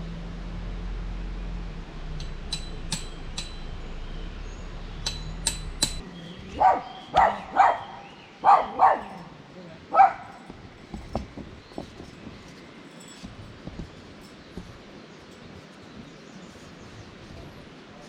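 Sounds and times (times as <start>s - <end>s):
light ringing clinks: 2.2s - 6.0s, 7.2s - 16.8s
dog barking: 6.5s - 10.5s.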